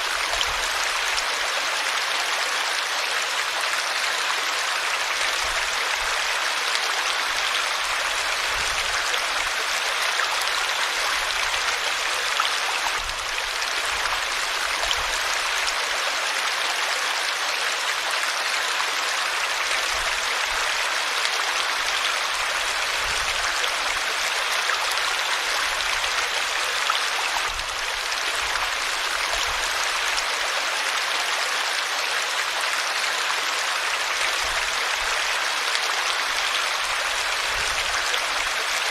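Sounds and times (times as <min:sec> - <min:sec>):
stream water flowing over rocks: 0:00.0 - 0:38.9.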